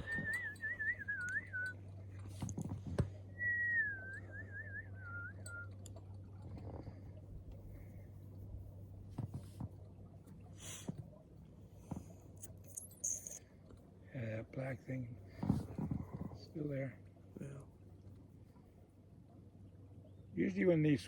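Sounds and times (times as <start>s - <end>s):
person whistling a tune: 0.0s - 1.8s, 3.4s - 5.7s
low steady hum: 0.0s - 21.0s.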